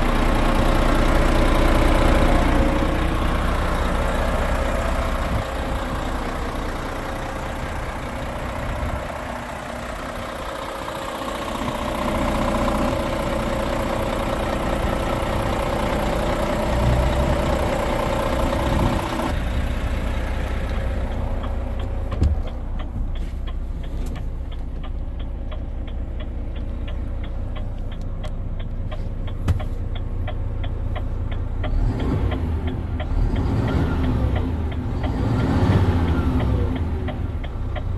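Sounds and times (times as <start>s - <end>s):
diesel truck engine running: 0.0s - 37.9s
fine rapid ticking: 21.0s - 31.7s.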